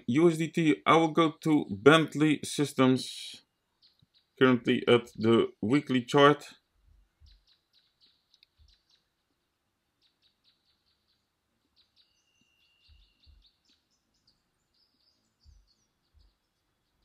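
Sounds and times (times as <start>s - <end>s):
faint bird chirps: 3.3s - 5.6s, 6.5s - 17.0s.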